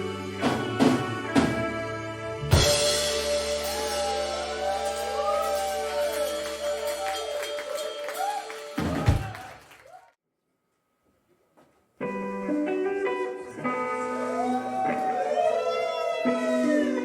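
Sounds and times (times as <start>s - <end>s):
rock band holding a chord: 0.0s - 9.4s
loud band hit: 0.4s - 9.6s.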